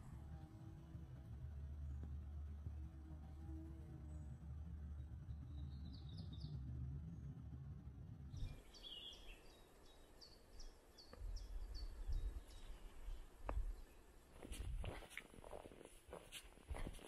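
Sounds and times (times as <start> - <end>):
low rumble: 0.0 - 8.8.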